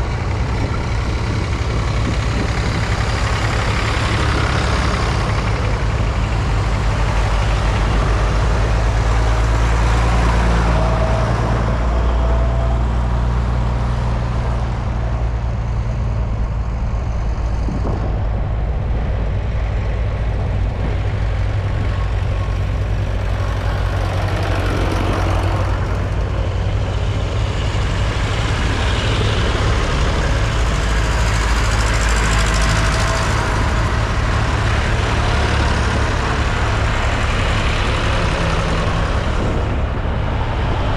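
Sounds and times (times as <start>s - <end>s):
diesel tractor engine running: 0.0s - 40.9s.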